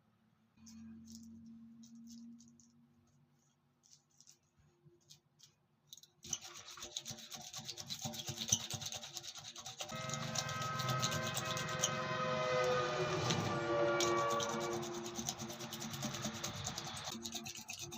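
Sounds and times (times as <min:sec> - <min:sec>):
rasping and buffing tyre rubber: 0:06.4 - 0:17.9
steady whine: 0:10.0 - 0:17.1.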